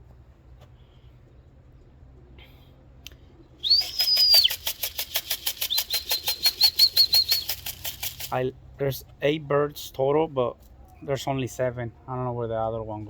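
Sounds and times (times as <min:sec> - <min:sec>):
person whistling warble: 0:03.6 - 0:04.9, 0:05.6 - 0:07.6
can of pigeon feed shaking: 0:03.6 - 0:08.4.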